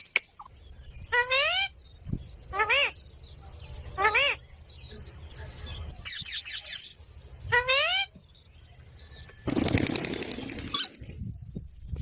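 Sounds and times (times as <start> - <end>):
noisy rustling: 9.4 - 12.0.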